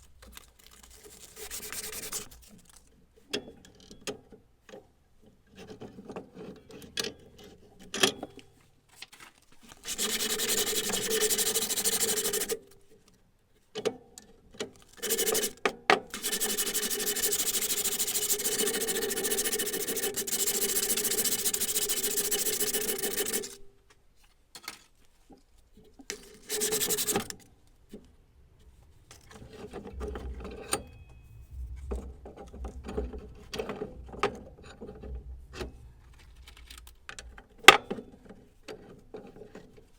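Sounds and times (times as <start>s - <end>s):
abrasive scraping on steel: 26.2s - 37.7s.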